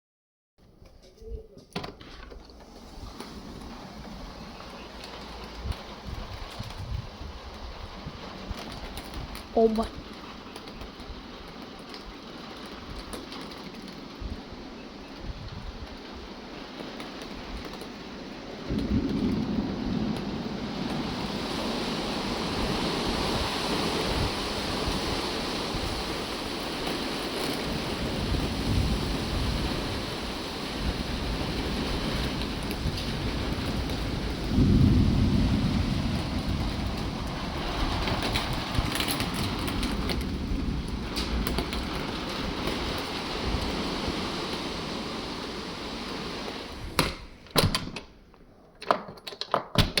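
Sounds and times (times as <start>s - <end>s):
heavy rain: 2.4s - 47.5s
low thunder rumble: 2.6s - 47.4s
sharp knocks and clicks: 48.8s - 50.0s.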